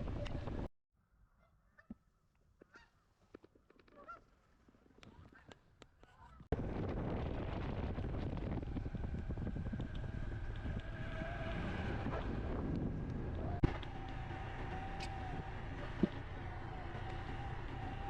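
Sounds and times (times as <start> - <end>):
wind buffeting microphone: 0.0 - 0.7, 6.5 - 18.0
motorcycle engine running: 6.6 - 18.0.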